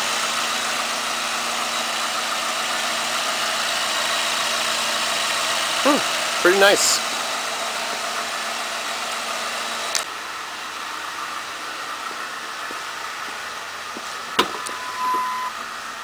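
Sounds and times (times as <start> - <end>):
car engine idling: 0.0 - 16.0
short steady tone: 14.4 - 15.6.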